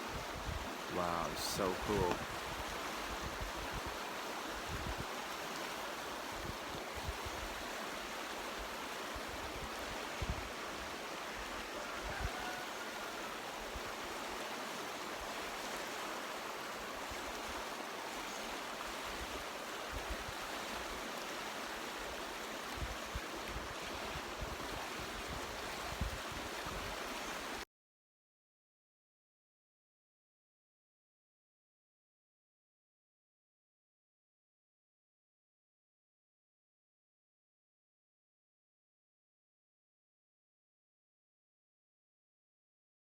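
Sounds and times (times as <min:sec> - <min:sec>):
creek rushing: 0:00.0 - 0:27.6.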